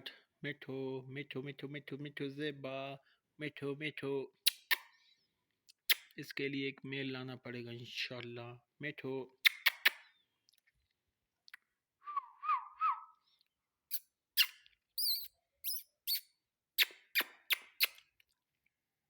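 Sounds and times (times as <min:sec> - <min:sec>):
parakeet whistling and squawking: 0:13.9 - 0:18.0.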